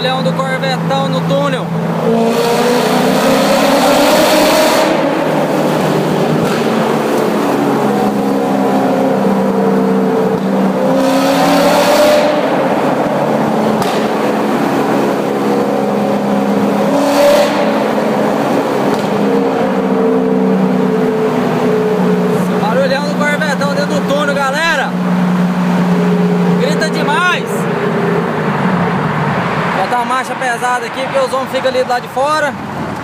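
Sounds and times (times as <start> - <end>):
car engine revving in a tunnel: 0.0 - 31.8.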